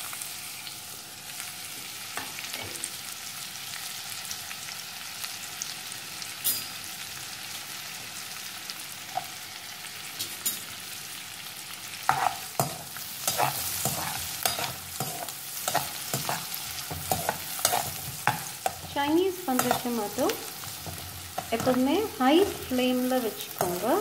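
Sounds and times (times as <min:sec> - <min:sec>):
onions sizzling in oil: 0:00.0 - 0:24.0
spatula scraping a pan: 0:12.1 - 0:22.8.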